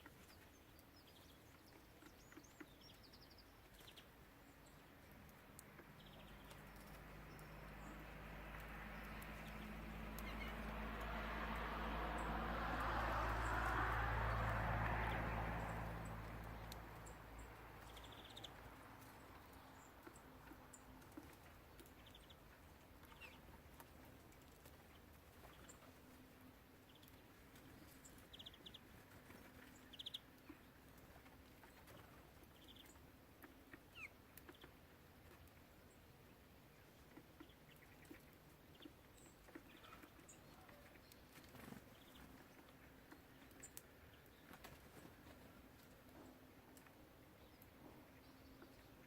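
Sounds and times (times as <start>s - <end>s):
songbirds calling: 0.0s - 49.0s
light ticks: 4.7s - 11.2s, 15.6s - 24.8s.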